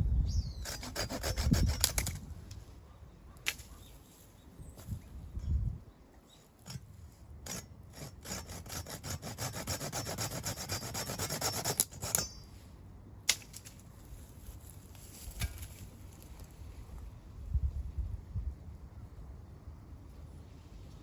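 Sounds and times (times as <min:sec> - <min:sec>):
hand saw cutting wood: 0:00.6 - 0:02.2, 0:06.6 - 0:12.4.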